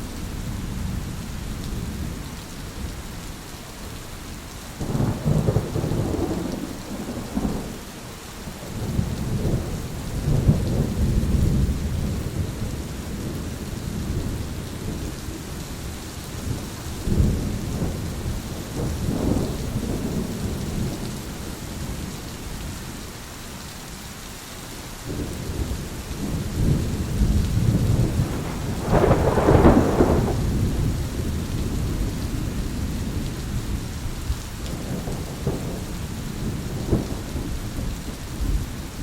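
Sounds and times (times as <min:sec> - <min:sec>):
heavy rain hissing: 0:00.0 - 0:39.0
rolling thunder: 0:04.8 - 0:15.4, 0:16.4 - 0:22.1, 0:25.1 - 0:39.0.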